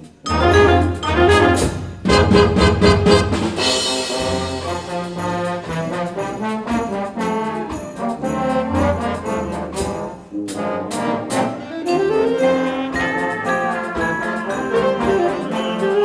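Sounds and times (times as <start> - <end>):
concert band playing: 0.0 - 16.0
sharp percussion hits: 0.0 - 16.0.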